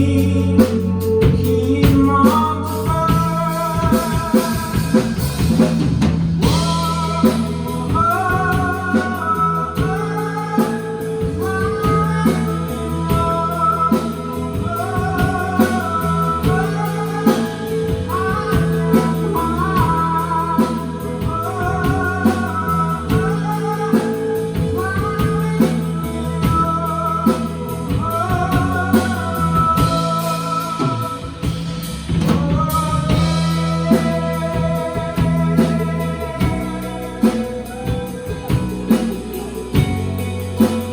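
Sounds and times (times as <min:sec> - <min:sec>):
person singing: 0:00.0 - 0:05.7, 0:06.4 - 0:40.9
rock band playing live: 0:00.0 - 0:40.9.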